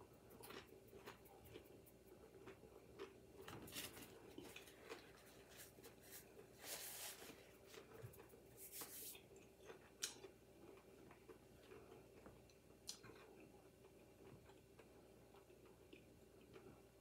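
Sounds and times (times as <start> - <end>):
faint crunching while chewing: 0.0 - 17.0
paper napkin rustling: 3.6 - 9.2.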